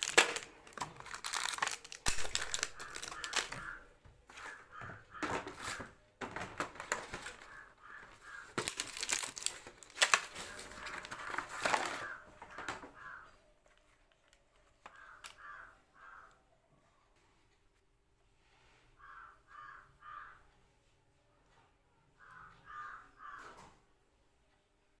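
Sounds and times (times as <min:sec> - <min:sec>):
packaging crinkling: 0:00.0 - 0:03.8, 0:08.2 - 0:12.8
crows cawing: 0:02.2 - 0:06.0, 0:07.1 - 0:09.5, 0:10.3 - 0:13.5, 0:14.8 - 0:16.6, 0:19.0 - 0:20.6, 0:22.2 - 0:23.8.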